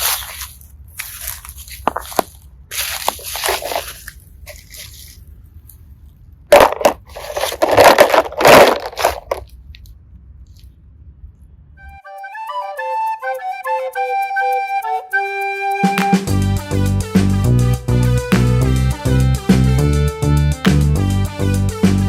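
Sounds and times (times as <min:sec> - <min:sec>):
slime crunching and crackling: 0:00.0 - 0:05.8.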